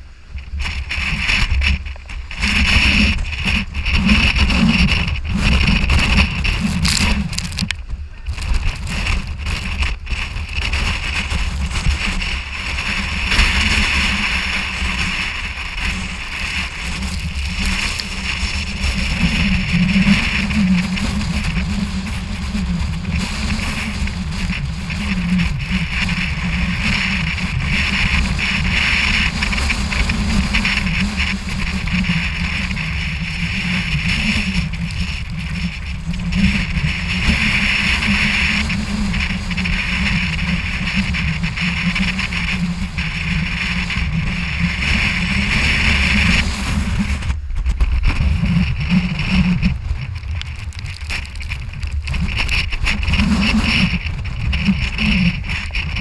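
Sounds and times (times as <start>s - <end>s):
sea roaring: 0.0s - 56.0s
storm wind roaring: 0.0s - 56.0s.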